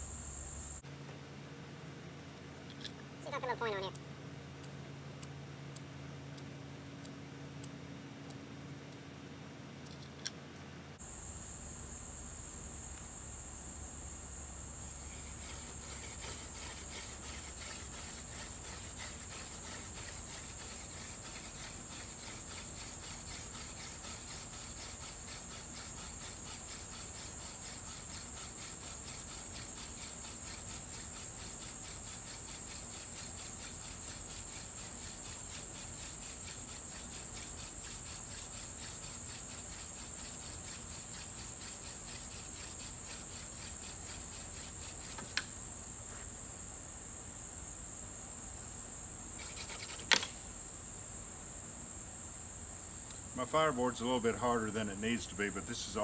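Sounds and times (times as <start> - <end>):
insects calling: 0.0 - 56.0
fast pulsing chirp: 0.9 - 11.0.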